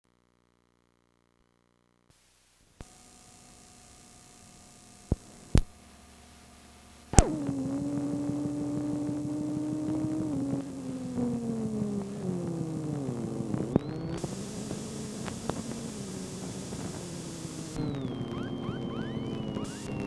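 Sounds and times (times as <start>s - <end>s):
vehicle running: 7.2s - 13.9s
sharp clicks: 13.6s - 20.0s.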